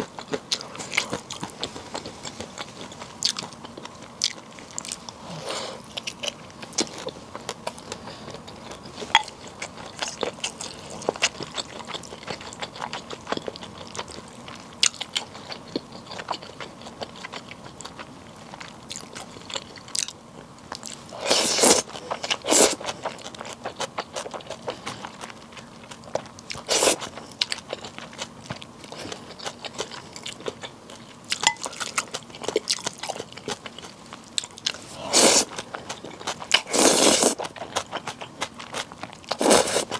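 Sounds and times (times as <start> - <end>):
person chewing noodles: 0.0 - 39.9.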